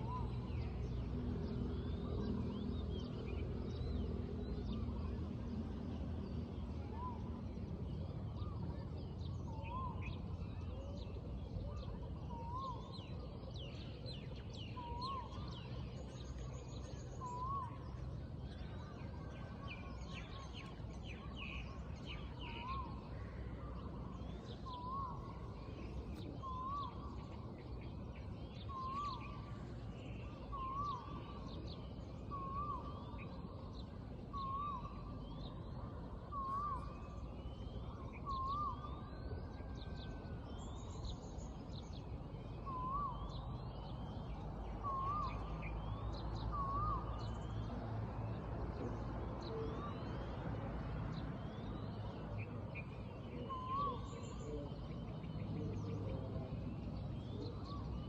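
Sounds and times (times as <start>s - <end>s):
low background noise: 0.0s - 58.0s
birds chirping: 51.1s - 58.0s.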